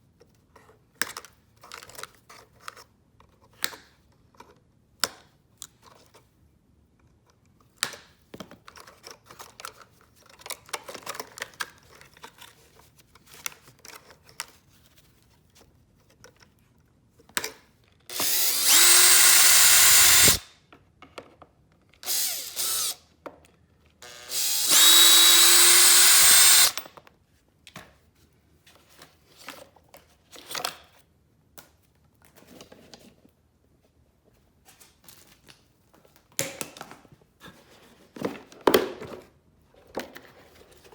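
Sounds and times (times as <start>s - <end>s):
power drill whining: 18.1s - 20.4s, 22.0s - 23.0s, 24.0s - 26.8s.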